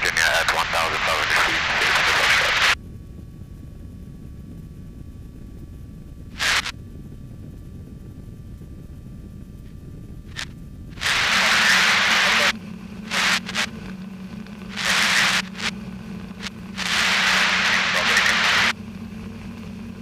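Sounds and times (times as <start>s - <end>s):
radio hiss bursts: 0.0s - 2.8s, 6.4s - 6.7s, 10.3s - 18.7s
muffled light aircraft engine drone: 0.0s - 20.0s.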